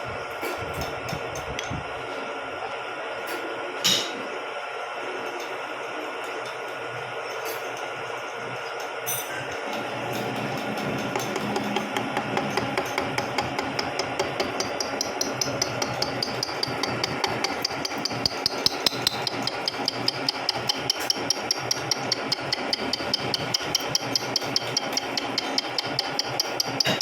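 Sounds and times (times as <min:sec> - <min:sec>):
milling machine high whine: 0:00.0 - 0:27.0
gear cutter ticking rapidly: 0:09.6 - 0:27.0.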